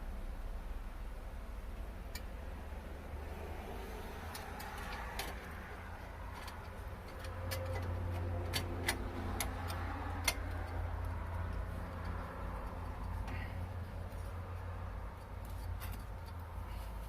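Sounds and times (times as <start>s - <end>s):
low steady hum: 0.0s - 17.0s
light clicks of small parts: 4.2s - 17.0s.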